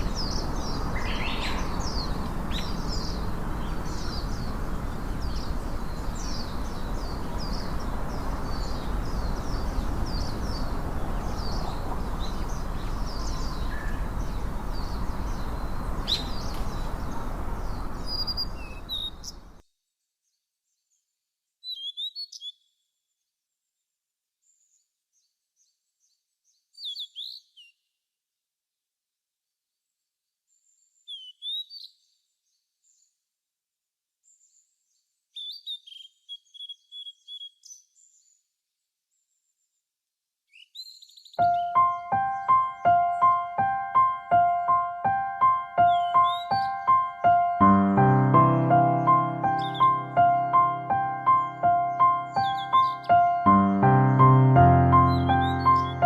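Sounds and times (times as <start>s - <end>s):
steady rushing noise: 0.0s - 18.8s
songbirds chirping: 0.0s - 28.0s, 29.4s - 33.4s, 34.2s - 56.0s.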